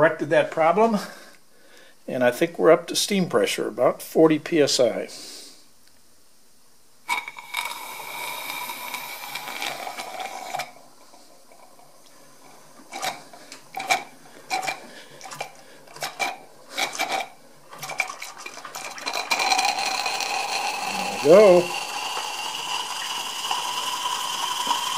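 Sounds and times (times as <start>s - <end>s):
steam hissing: 7.1s - 11.6s, 19.1s - 24.9s
steam engine spitting and clicking: 12.9s - 24.9s.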